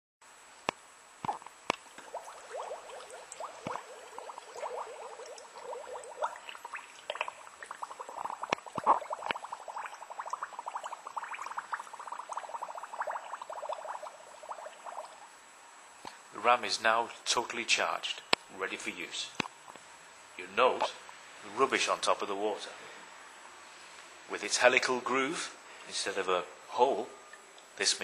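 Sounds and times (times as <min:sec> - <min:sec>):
water gurgling and bubbling: 0:01.3 - 0:15.3.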